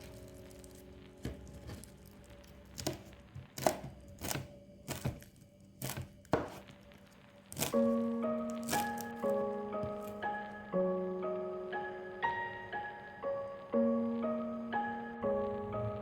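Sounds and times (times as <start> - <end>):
soft background music: 0.0 - 16.0
knife chopping on cutting board: 2.8 - 6.6.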